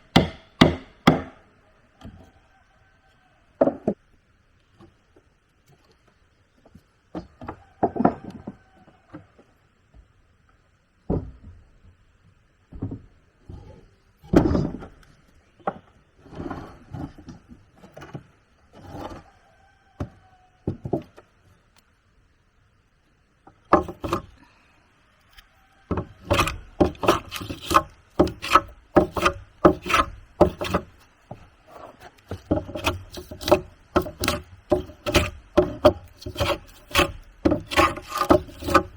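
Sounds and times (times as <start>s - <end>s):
timber knocks and scrapes: 12.7s - 19.4s, 23.7s - 24.4s, 25.9s - 38.9s
quick hand tool strokes on wood: 26.2s - 31.0s, 31.7s - 38.9s.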